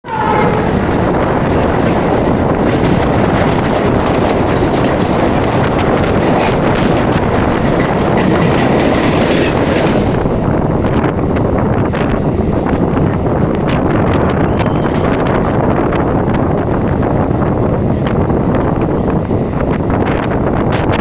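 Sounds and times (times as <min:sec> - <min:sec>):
brief high tone: 0:00.0 - 0:01.0
wheels clattering over rail joints: 0:00.0 - 0:17.0
train rumble: 0:00.0 - 0:21.0.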